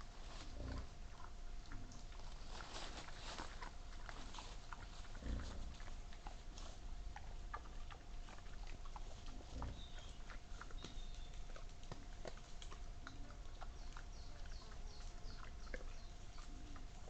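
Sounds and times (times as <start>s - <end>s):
boar crunching and snuffling: 0.0s - 17.0s
boar low grunt: 5.2s - 5.8s.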